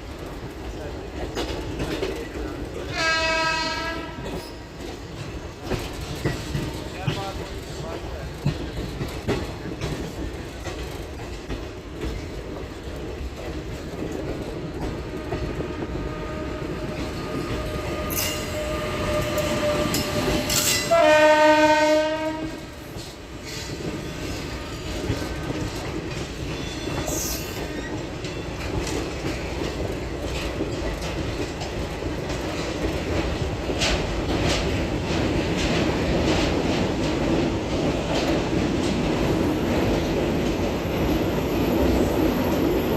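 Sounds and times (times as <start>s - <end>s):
train wheels rumbling on track: 0.0s - 42.9s
train horn: 2.9s - 4.4s, 15.2s - 22.8s.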